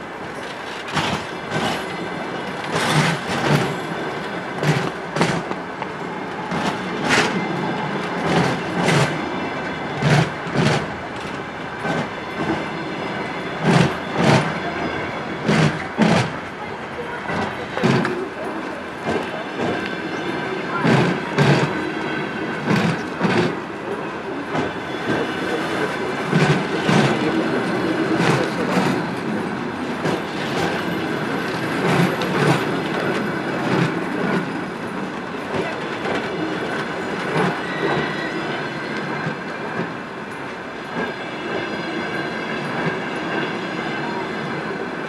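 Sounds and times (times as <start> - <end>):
train rolling rumble: 0.0 - 45.0
train wheels clickety-clack: 0.0 - 45.0
faint wheel squeal: 37.3 - 39.4.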